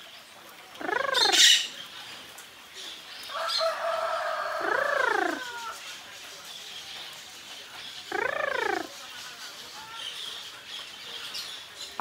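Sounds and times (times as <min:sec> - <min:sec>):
parrot calling and squawking: 0:00.8 - 0:01.7, 0:08.1 - 0:08.9.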